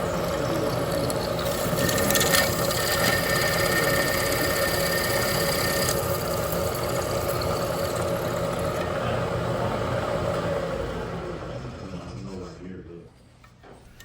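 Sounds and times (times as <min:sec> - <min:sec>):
drill cutting through steel: 0:00.0 - 0:08.9
machine tool running: 0:00.0 - 0:12.2.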